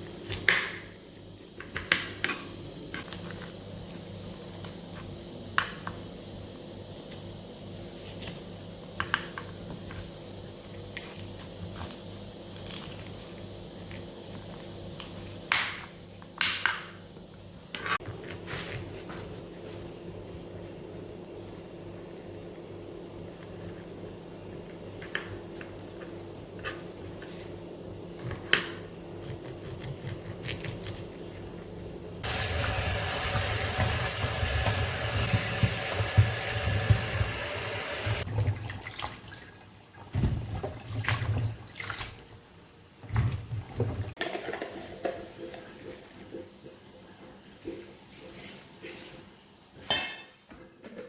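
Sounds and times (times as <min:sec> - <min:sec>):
water running from a tap: 0:32.2 - 0:42.4.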